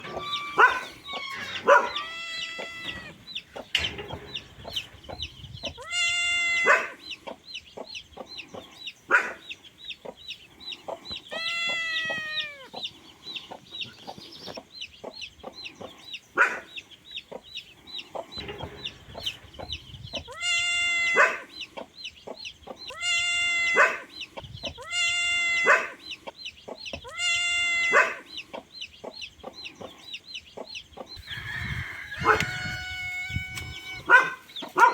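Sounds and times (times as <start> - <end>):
chicken squawking: 0.0 - 7.0, 11.3 - 12.8, 20.1 - 21.5, 22.9 - 26.0, 27.0 - 28.3, 31.2 - 34.9.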